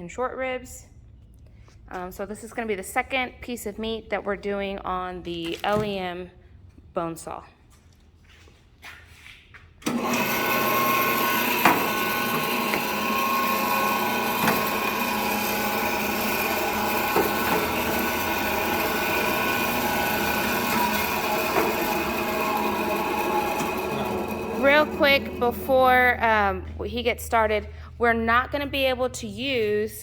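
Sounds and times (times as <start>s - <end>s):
electric band saw running: 9.8s - 26.7s.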